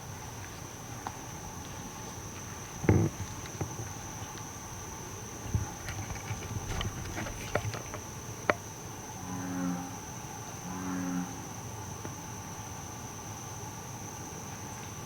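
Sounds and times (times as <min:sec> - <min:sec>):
insects chirring: 0:00.6 - 0:14.6
bullfrog deep droning calls: 0:09.1 - 0:11.6.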